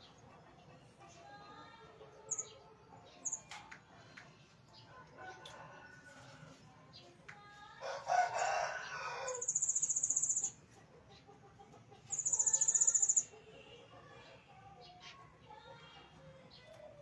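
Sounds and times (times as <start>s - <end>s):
rooster crowing: 7.8s - 9.6s.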